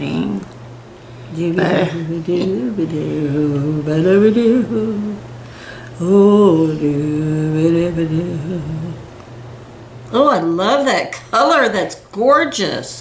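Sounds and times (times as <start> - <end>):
woman humming: 0.0 - 0.6, 1.3 - 9.1.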